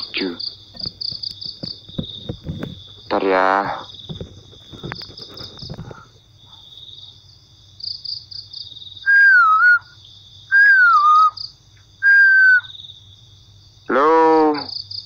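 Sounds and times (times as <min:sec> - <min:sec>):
night insects chirping: 0:00.0 - 0:15.0
descending whistle-like notes: 0:09.0 - 0:09.9, 0:10.5 - 0:11.4, 0:12.0 - 0:12.7.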